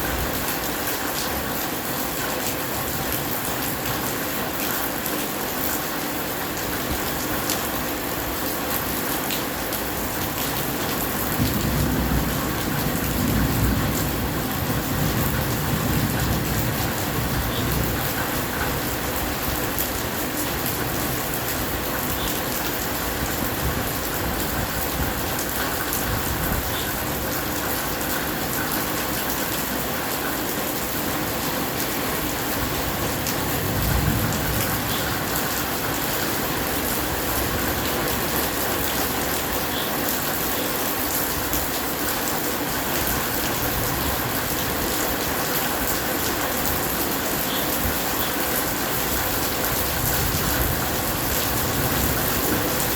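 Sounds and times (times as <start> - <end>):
steady rain hiss: 0.0 - 52.9
thunder rumbling: 11.2 - 19.6, 32.6 - 38.2, 49.7 - 52.9.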